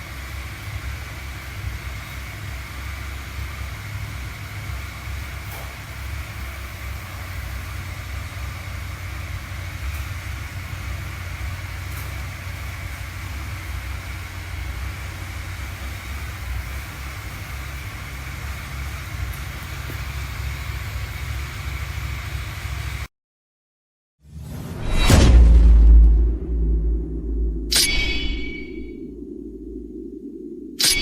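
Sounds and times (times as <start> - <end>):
motorcycle engine idling: 0.0 - 23.1.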